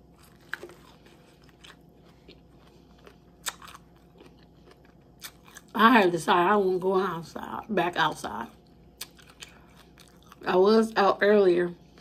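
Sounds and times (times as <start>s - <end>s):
crunching crisp salad: 0.0s - 5.8s, 8.6s - 10.5s.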